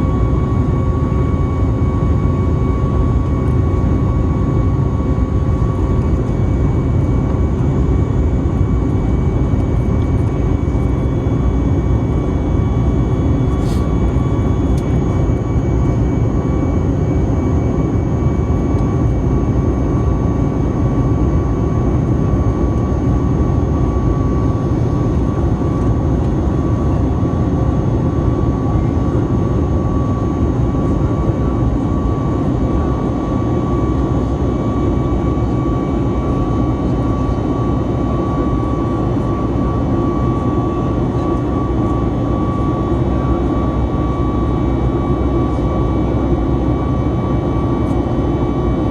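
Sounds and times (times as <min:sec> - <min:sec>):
aircraft cabin engine roar: 0:00.0 - 0:48.9
steady whine: 0:00.0 - 0:48.9.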